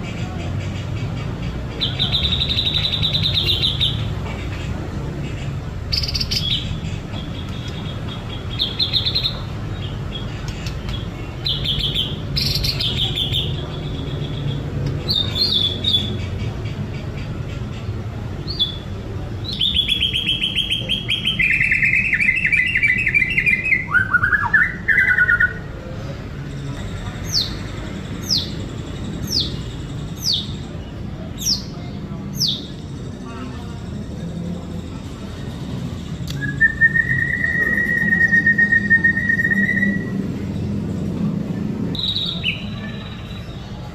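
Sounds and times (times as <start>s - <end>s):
bird singing whistles and trills: 36.3s - 40.2s, 42.0s - 43.6s.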